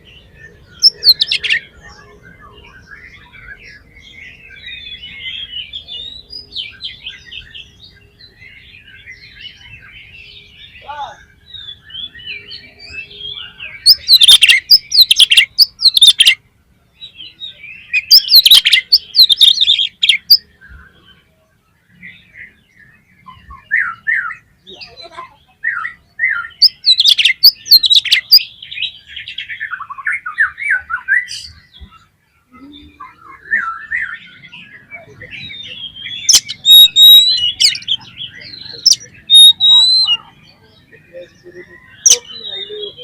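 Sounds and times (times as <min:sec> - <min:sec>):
bird singing rapid varied notes: 0:00.0 - 0:16.4, 0:17.2 - 0:43.0.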